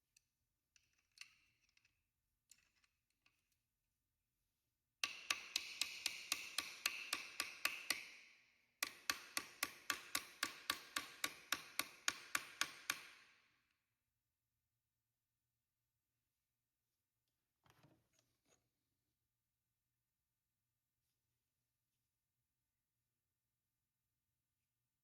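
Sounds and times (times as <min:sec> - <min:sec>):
hammer tapping on steel: 0:05.0 - 0:08.2, 0:08.8 - 0:13.2.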